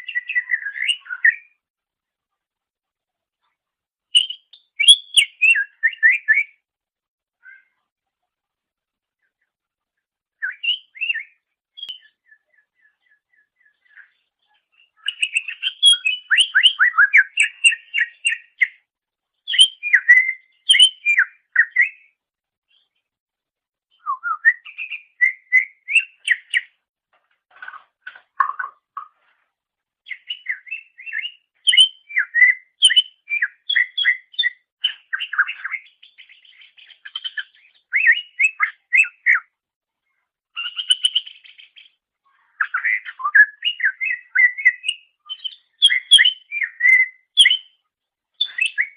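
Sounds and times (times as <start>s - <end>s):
bird singing chirps and whistles: 0.0s - 1.6s, 4.1s - 6.6s, 7.4s - 7.8s, 10.4s - 14.2s, 14.8s - 18.9s, 19.5s - 22.2s, 23.9s - 26.8s, 30.1s - 39.5s, 40.6s - 41.9s, 42.5s - 47.8s, 48.4s - 48.9s.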